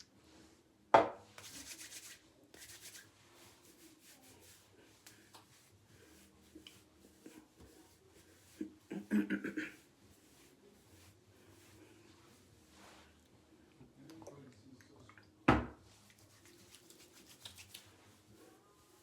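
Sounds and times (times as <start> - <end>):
hands rubbing through hair: 1.4 - 13.3, 15.9 - 19.0.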